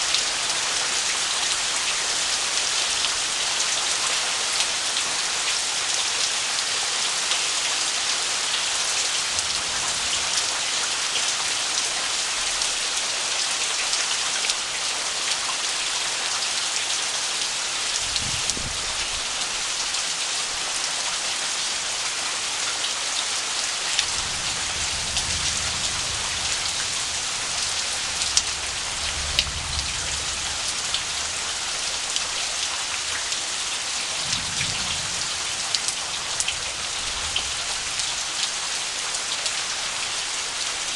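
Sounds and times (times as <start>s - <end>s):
heavy rain: 0.0s - 40.9s.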